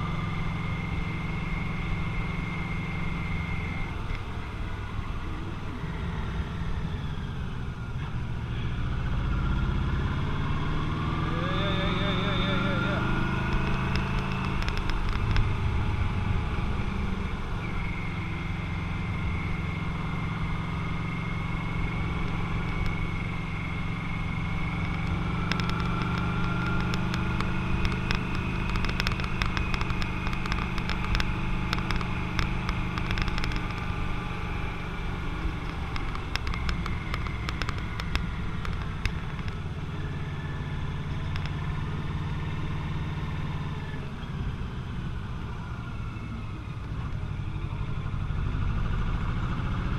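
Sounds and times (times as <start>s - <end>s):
motorcycle engine cruising: 0.0s - 49.9s
short sharp clicks: 24.8s - 33.9s.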